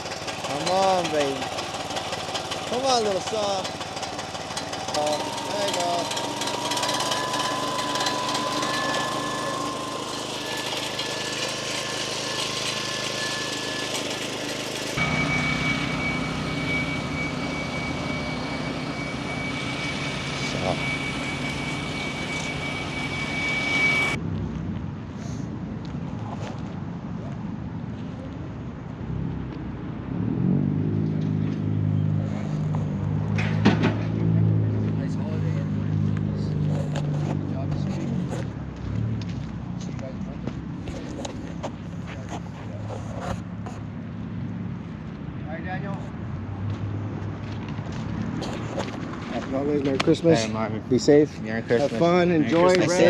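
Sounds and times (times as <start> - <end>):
gasoline saw engine running: 0.0 - 24.2.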